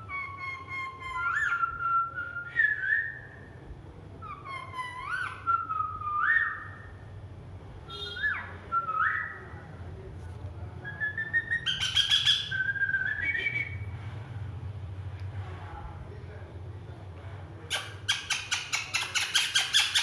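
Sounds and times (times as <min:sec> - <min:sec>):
parrot whistling and chirping: 0:00.0 - 0:03.4, 0:04.2 - 0:06.9, 0:08.0 - 0:09.4, 0:10.8 - 0:13.9, 0:17.7 - 0:20.0.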